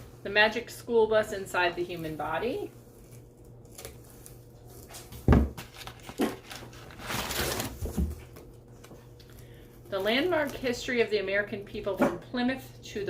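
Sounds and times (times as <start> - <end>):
paper rustling: 2.0 - 9.4
books thumping: 5.0 - 6.6, 7.2 - 8.3.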